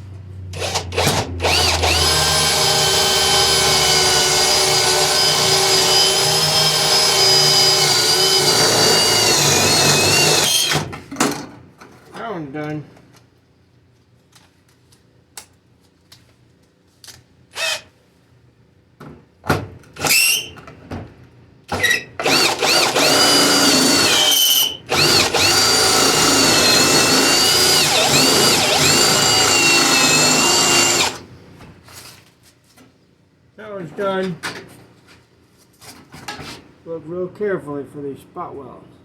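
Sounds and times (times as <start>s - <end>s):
electric drill drilling steel: 0.6s - 10.9s, 22.2s - 31.3s.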